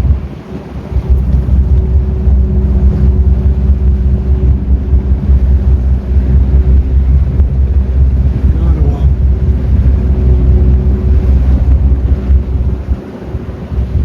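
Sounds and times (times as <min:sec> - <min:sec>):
boat engine rumbling: 0:00.0 - 0:14.0
faint steady hum: 0:00.0 - 0:14.0
wind buffeting microphone: 0:00.0 - 0:14.0.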